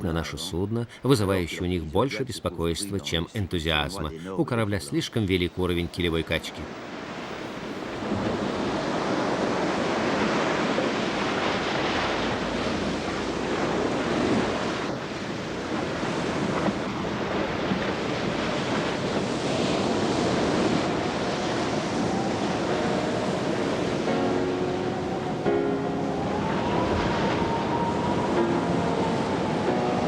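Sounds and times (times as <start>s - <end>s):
rough sea waves: 0.0s - 30.0s
storm wind: 6.6s - 30.0s
wind buffeting microphone: 6.8s - 30.0s.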